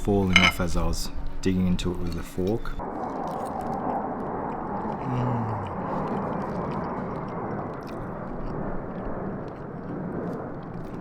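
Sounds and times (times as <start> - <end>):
person humming low: 5.0 - 6.2.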